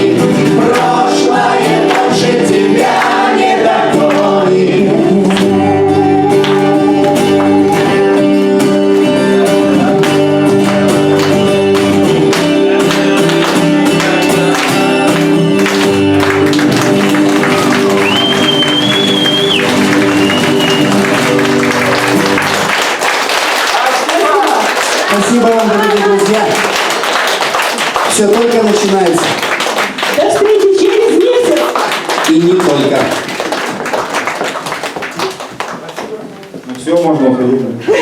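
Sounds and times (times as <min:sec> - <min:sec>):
strummed acoustic guitar chords: 0:00.0 - 0:22.7.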